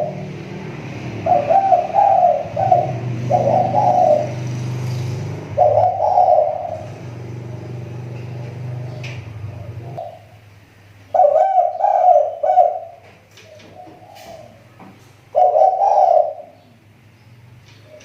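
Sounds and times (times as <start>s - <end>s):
dove cooing: 0.0s - 10.4s, 11.1s - 16.8s.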